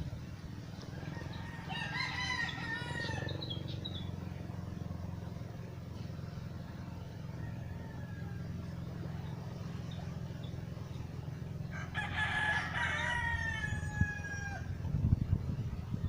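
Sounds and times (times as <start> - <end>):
long rising and falling bird call: 0.2 - 14.8.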